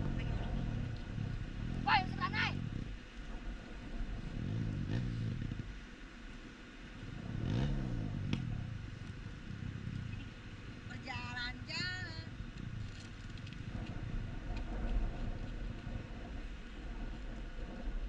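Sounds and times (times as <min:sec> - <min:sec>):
motorcycle engine revving: 0:00.0 - 0:05.9, 0:07.0 - 0:17.8.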